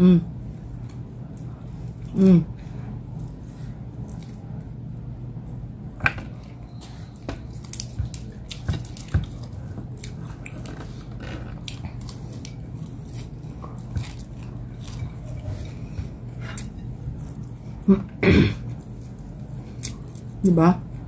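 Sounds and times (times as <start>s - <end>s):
low steady hum: 0.0s - 21.0s
person chewing food: 3.1s - 4.7s, 6.2s - 21.0s.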